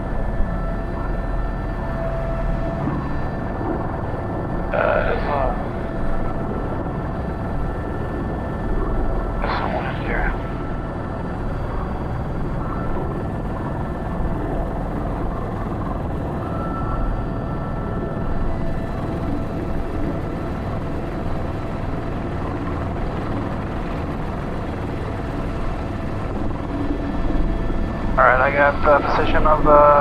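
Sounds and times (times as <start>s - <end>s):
helicopter engine and rotor: 0.0s - 30.0s
high whine: 0.0s - 30.0s.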